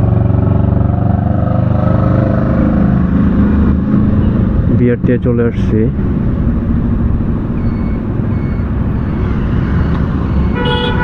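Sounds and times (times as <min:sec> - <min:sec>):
motorcycle engine and wind rumble: 0:00.0 - 0:11.0
vehicle horn: 0:10.5 - 0:11.0.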